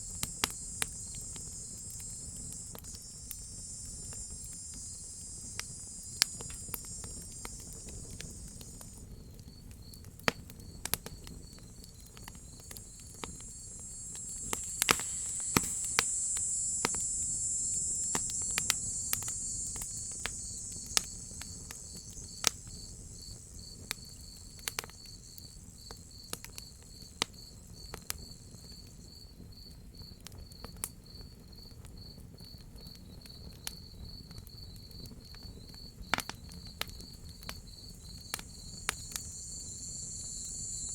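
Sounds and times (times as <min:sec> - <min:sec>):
wood fire crackling: 0:00.0 - 0:26.6, 0:36.1 - 0:40.9
high insect trill: 0:00.0 - 0:29.7, 0:32.8 - 0:40.9
crickets chirping: 0:00.0 - 0:40.9.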